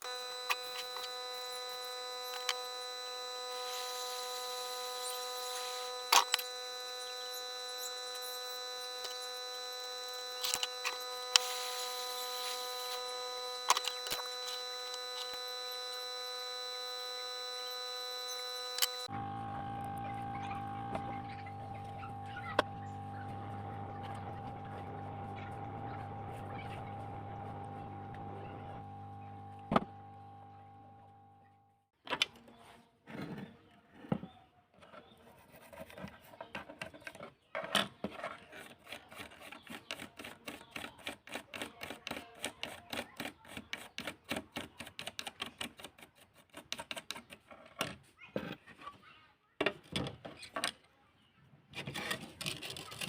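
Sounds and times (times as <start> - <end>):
steady hum: 0.0 - 31.2.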